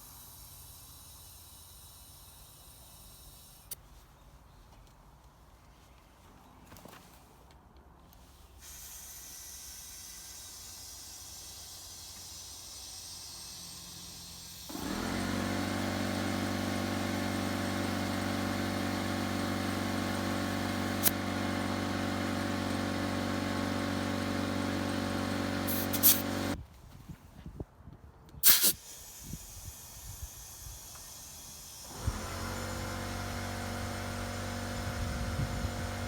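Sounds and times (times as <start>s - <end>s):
lawnmower engine running: 14.7s - 26.6s, 31.8s - 36.0s.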